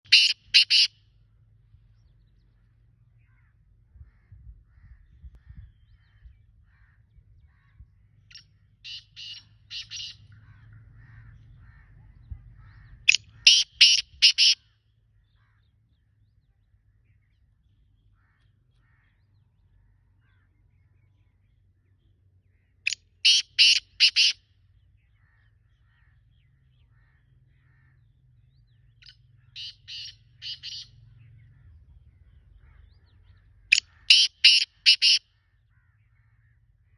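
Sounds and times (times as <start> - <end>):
francolin harsh call: 0.0 - 1.0, 13.3 - 14.7, 23.2 - 24.4, 29.5 - 30.9, 33.7 - 35.2.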